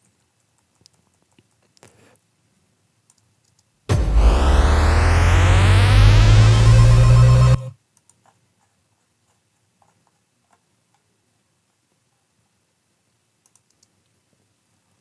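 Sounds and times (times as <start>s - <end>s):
heavy low hit with electronic sweeps: 3.9s - 7.7s.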